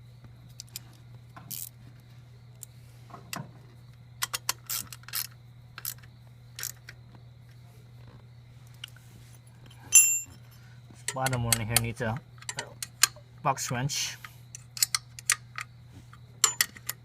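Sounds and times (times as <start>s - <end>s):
steady low hum: 0.0s - 17.0s
wrench clicking on metal bolts: 11.1s - 13.2s.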